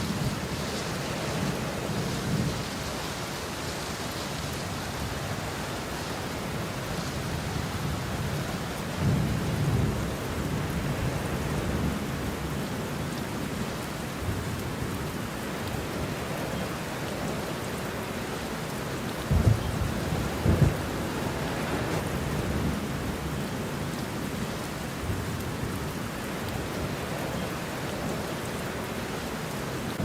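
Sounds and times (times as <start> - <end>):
steady rain: 0.0 - 30.0
rolling thunder: 19.2 - 23.4.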